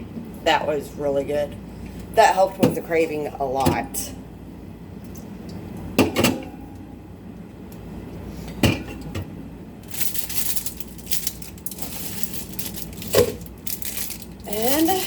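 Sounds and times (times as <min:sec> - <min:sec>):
containers scraping and handling: 0:09.9 - 0:15.0.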